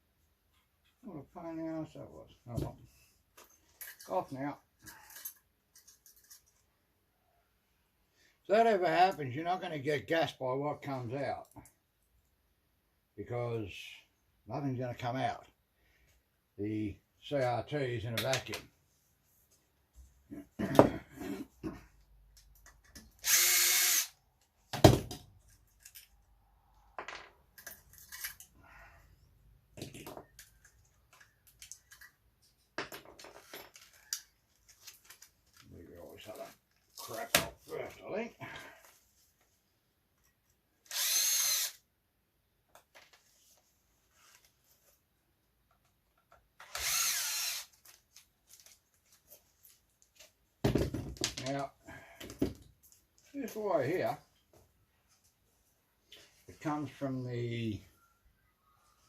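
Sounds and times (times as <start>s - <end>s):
faint clicks of parts handled: 3.3s - 6.7s, 22.0s - 23.1s, 25.4s - 26.3s, 29.8s - 37.2s
electric drill-driver spinning: 23.2s - 24.2s, 40.9s - 41.8s, 46.6s - 47.9s
power screwdriver whine: 23.2s - 24.2s, 40.9s - 41.8s, 46.6s - 47.7s.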